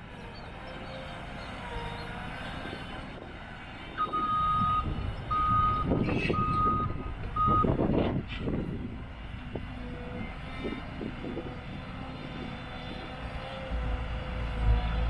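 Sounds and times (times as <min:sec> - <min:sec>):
excavator engine rumble: 0:00.0 - 0:15.0
excavator alarm beeps: 0:04.0 - 0:07.8.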